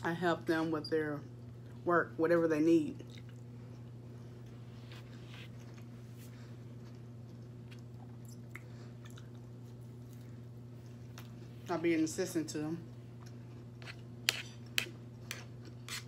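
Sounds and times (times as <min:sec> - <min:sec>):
person chewing food: 0:03.0 - 0:11.6, 0:13.1 - 0:16.0.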